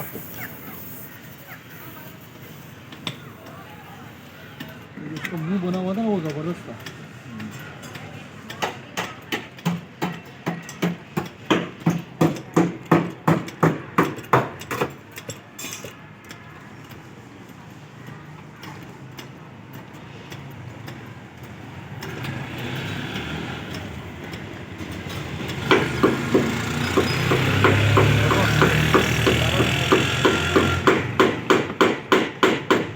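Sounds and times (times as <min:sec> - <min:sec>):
hammer blows on metal: 0:23.7 - 0:32.9.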